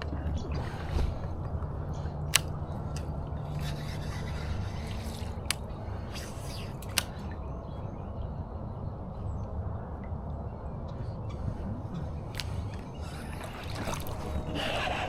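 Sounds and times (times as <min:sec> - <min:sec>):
low steady rumble: 0:00.0 - 0:15.0
sharp clicks: 0:02.2 - 0:03.1, 0:06.5 - 0:07.2
fishing tackle rubbing and scraping: 0:02.3 - 0:07.2.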